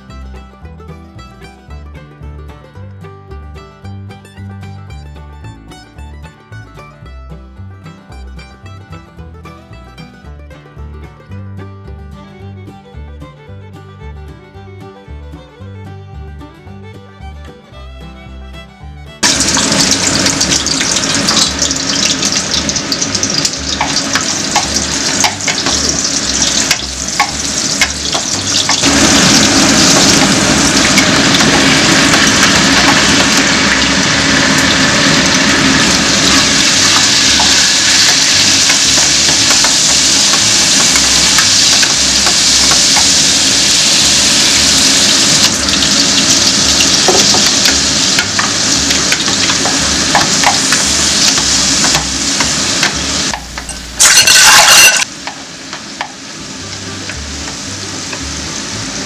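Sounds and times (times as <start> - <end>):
spatula tapping pan: 19.2 - 33.9, 35.8 - 44.1, 45.5 - 53.9, 55.2 - 56.2
food sizzling in hot oil: 19.2 - 59.0.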